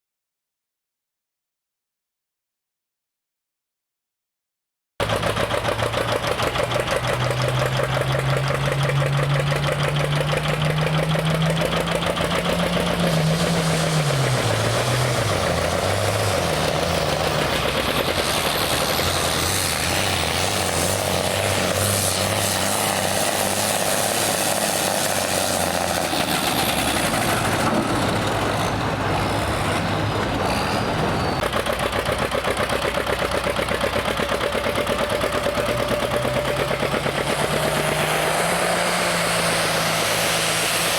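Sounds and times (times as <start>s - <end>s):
tractor engine running under load: 5.0s - 40.9s.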